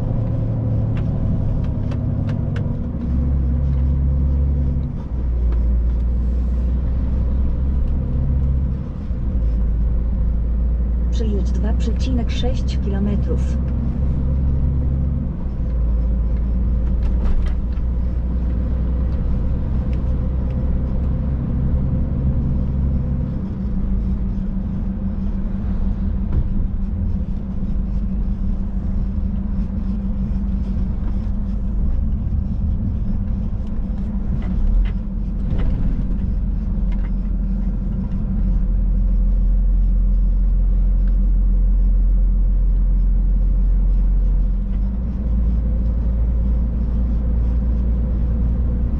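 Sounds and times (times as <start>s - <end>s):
truck engine drone in cab: 0.0s - 48.9s.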